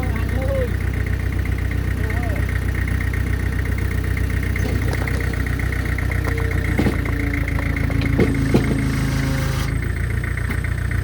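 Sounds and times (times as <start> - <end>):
diesel engine idling: 0.0 - 11.0
metallic knocks: 4.5 - 9.7.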